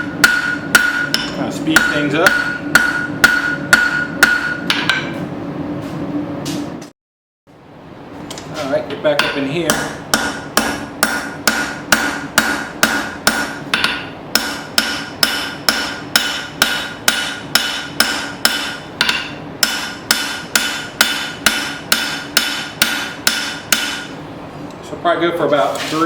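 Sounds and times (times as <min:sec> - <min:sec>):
hammer ringing on anvil: 0:00.0 - 0:05.2, 0:09.2 - 0:24.1.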